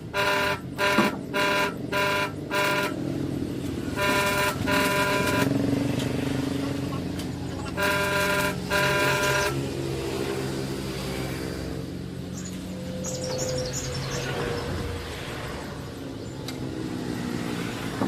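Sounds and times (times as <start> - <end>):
car horn honking: 0.0 - 3.2, 3.8 - 5.6, 7.5 - 9.7
engine running: 0.0 - 18.0.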